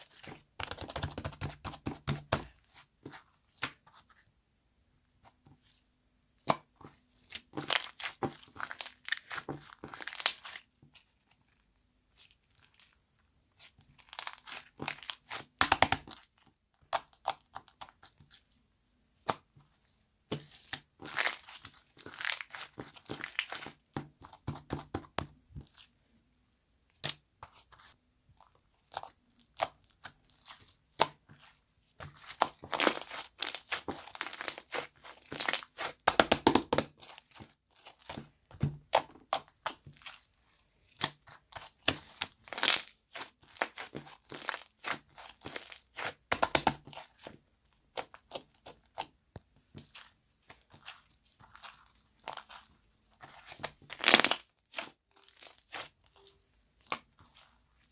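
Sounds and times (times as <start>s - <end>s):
slime squeezed crackling and popping: 7.6s - 10.5s, 32.2s - 38.2s, 41.6s - 47.0s, 53.3s - 55.9s.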